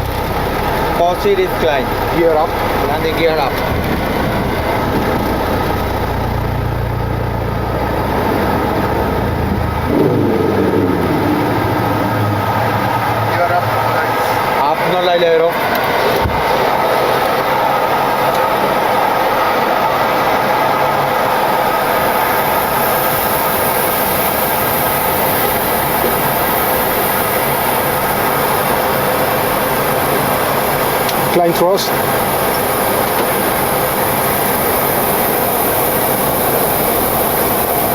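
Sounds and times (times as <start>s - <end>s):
higher hum: 0.0s - 20.4s
jet engine noise: 0.0s - 37.9s
rush of airflow in cockpit: 0.0s - 37.9s
deep low rumble: 1.8s - 16.9s.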